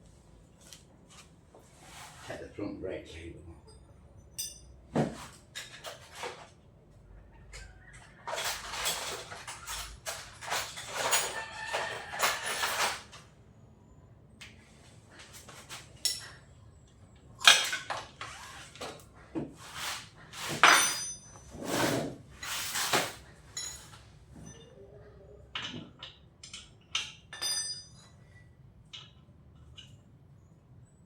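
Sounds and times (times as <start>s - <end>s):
workshop fan humming: 0.0s - 30.9s
hand tools clinking on metal parts: 4.3s - 4.8s, 8.3s - 13.2s, 16.0s - 16.4s, 20.4s - 24.7s, 25.6s - 28.3s.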